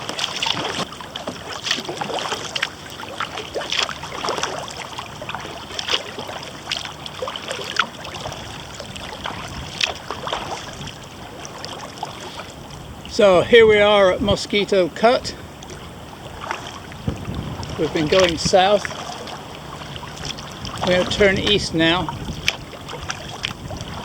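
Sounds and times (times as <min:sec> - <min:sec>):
paddle splashing water: 0:00.0 - 0:24.0
hiss of moving water: 0:11.7 - 0:12.8.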